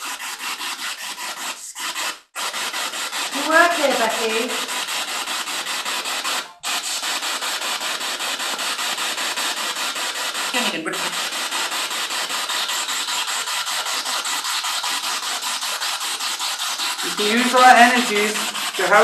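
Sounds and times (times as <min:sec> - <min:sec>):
brief voice through static: 0:03.4 - 0:04.7, 0:10.6 - 0:11.2, 0:17.1 - 0:19.0
pulsing radio static: 0:03.4 - 0:04.7, 0:10.6 - 0:11.2, 0:17.0 - 0:19.0.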